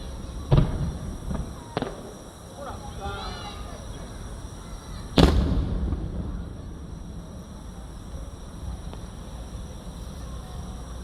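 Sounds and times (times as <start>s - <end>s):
firework boom: 0.1s - 2.4s, 4.3s - 10.4s
low background rumble: 3.6s - 11.0s.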